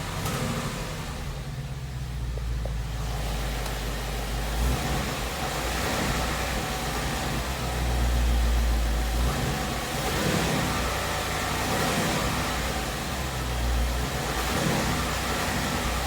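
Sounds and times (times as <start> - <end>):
car engine low rumble: 0.0 - 16.0.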